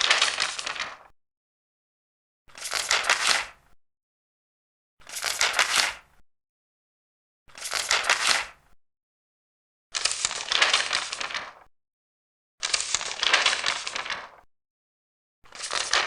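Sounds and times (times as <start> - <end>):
paper page turning: 0.0 - 1.1, 2.5 - 3.5, 5.1 - 6.0, 7.5 - 8.6, 10.0 - 11.7, 12.6 - 14.4, 15.5 - 16.0.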